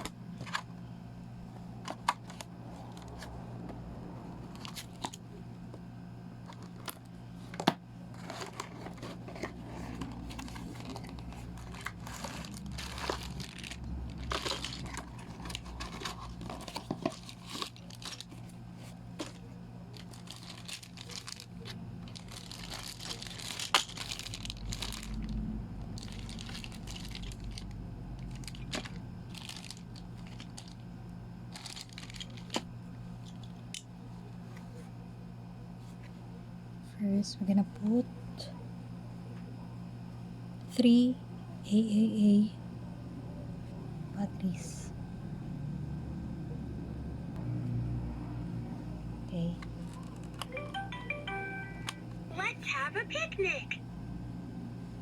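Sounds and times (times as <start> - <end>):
steady low hum: 0.0 - 55.0
cardboard and plastic tearing: 8.2 - 25.3, 28.3 - 30.8, 31.5 - 32.7.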